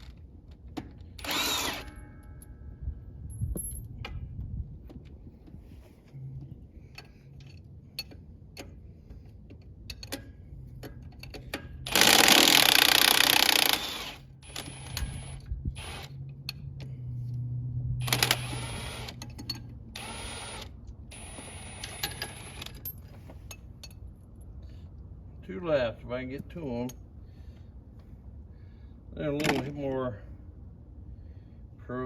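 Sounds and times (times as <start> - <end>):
pneumatic impact wrench: 1.2 - 2.0, 11.4 - 16.2, 18.0 - 22.8.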